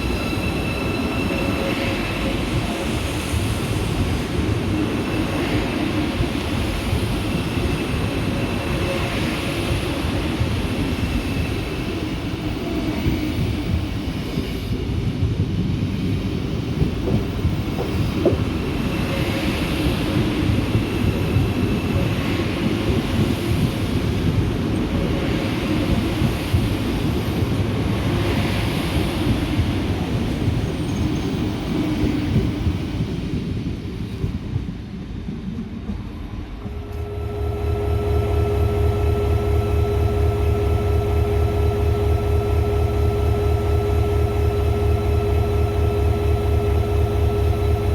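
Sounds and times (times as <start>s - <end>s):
train rumbling on rails: 0.0s - 47.9s
machine hum with held tones: 36.8s - 47.9s.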